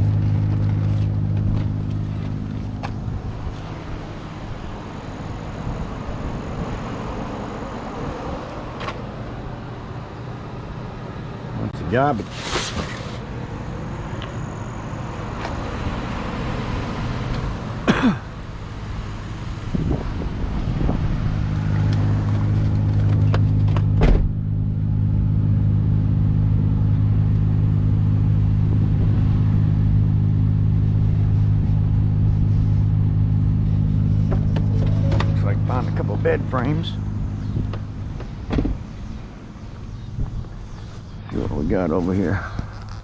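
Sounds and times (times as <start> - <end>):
car engine running: 0.0 - 43.0
rustling: 12.1 - 13.3.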